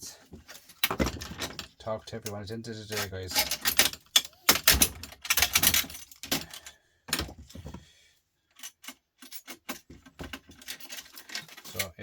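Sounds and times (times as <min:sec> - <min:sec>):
metal parts and tools clinking: 0:00.3 - 0:07.6, 0:08.5 - 0:12.0.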